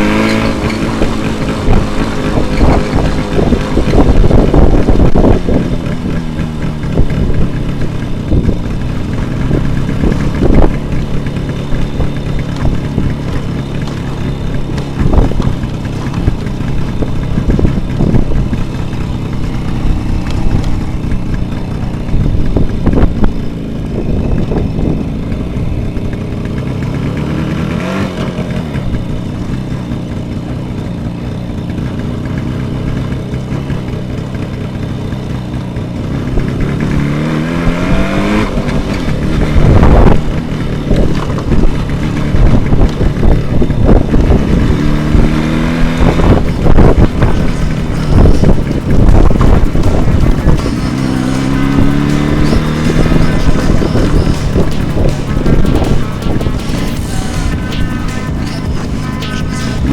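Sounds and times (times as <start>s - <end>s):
engine knocks: 0.0s - 59.9s
two-stroke motorcycle engine running: 0.0s - 59.9s.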